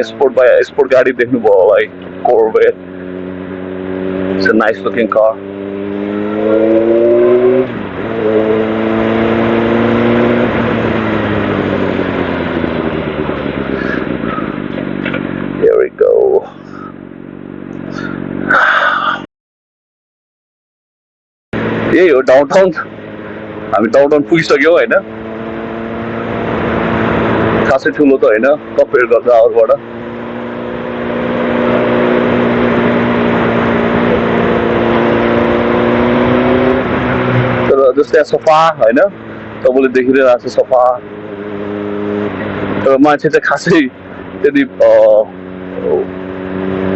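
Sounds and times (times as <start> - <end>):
motorcycle engine accelerating: 0.0 - 19.0, 21.6 - 46.9.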